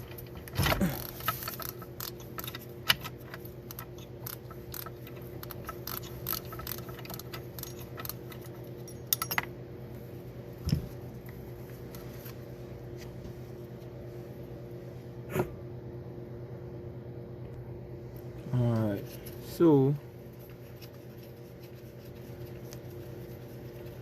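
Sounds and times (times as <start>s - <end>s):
metal parts clicking and clinking: 0.0s - 9.5s.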